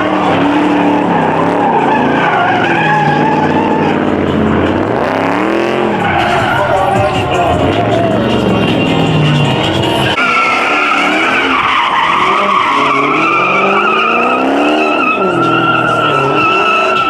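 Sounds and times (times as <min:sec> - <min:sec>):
car engine revving: 0:00.0 - 0:17.0
car tires squealing: 0:00.0 - 0:17.0.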